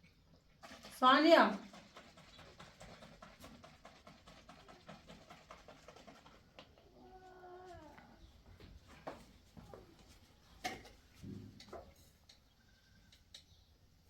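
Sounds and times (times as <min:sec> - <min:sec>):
faint drawn-out animal call: 0:06.8 - 0:08.3.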